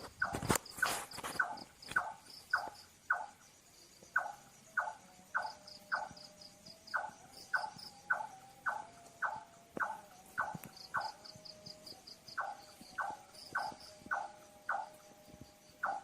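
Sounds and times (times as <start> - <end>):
insects chirping: 0.0 - 16.0
night bird calling: 0.0 - 16.0.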